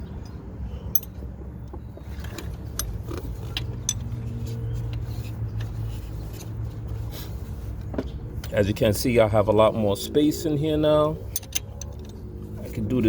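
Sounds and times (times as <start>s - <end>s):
tools clicking and clinking: 0.2s - 4.2s, 11.2s - 12.8s.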